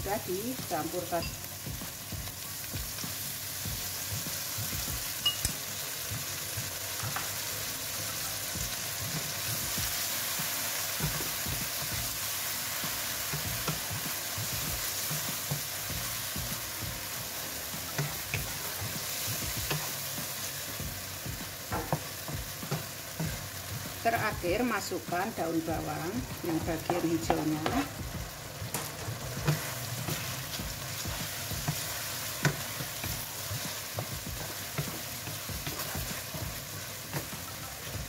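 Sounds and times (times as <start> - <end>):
food sizzling in a pan: 0.0 - 38.0
spatula tapping a pan: 21.6 - 23.4, 28.7 - 37.6.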